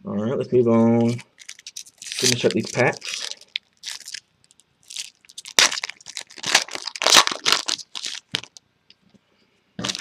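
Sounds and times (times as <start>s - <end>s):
foil wrappers crinkling: 1.0s - 8.6s, 9.8s - 10.0s.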